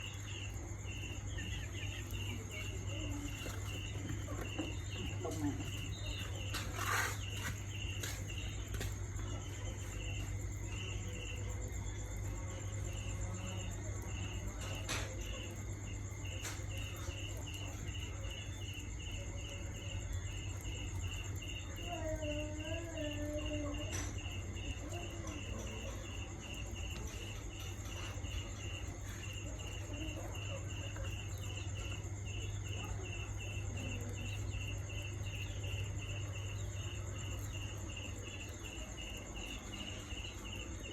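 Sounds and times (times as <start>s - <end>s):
constant high buzz: 0.0s - 40.9s
insect chirping: 0.0s - 40.9s.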